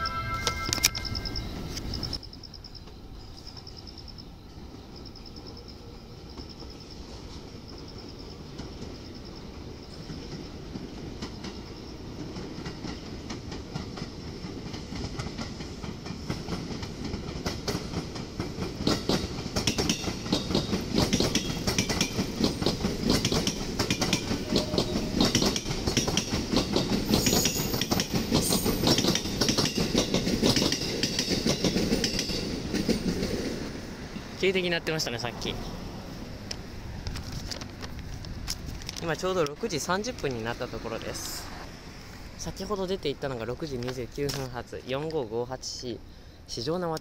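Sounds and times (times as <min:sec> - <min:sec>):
train wheels clattering over rail joints: 0:10.0 - 0:34.4.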